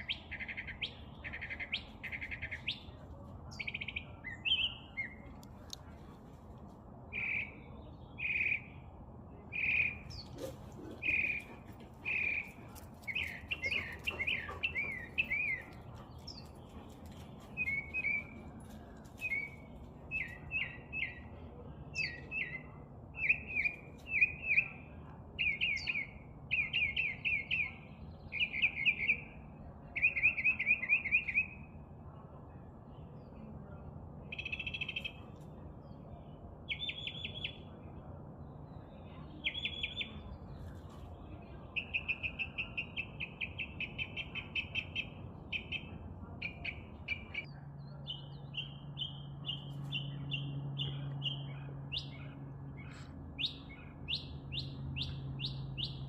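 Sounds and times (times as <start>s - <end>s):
faint low hum: 0.0s - 56.0s
songbird chirping: 7.1s - 31.8s, 38.6s - 56.0s.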